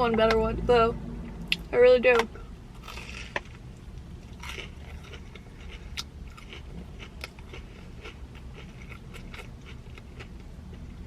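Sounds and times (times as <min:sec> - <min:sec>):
chewing crunchy food: 0:02.8 - 0:11.0.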